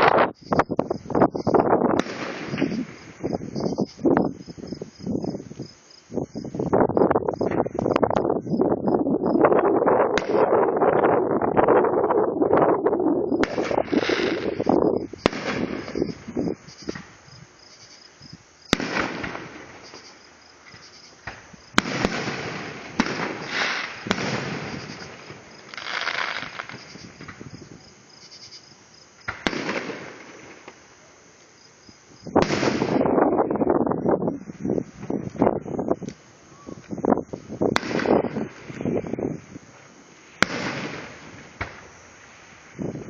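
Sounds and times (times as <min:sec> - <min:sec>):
firework crackling: 0:00.0 - 0:08.3, 0:09.4 - 0:43.0
firework bangs: 0:01.0 - 0:05.0, 0:10.0 - 0:11.6, 0:13.3 - 0:17.3, 0:18.6 - 0:27.9, 0:29.2 - 0:30.9, 0:32.2 - 0:33.7, 0:37.5 - 0:43.0.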